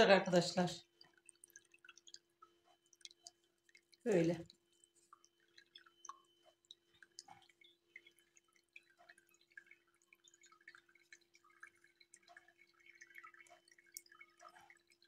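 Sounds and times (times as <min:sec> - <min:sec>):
faint steady hum: 0:00.0 - 0:15.0
syrup simmering with pops: 0:00.8 - 0:15.0.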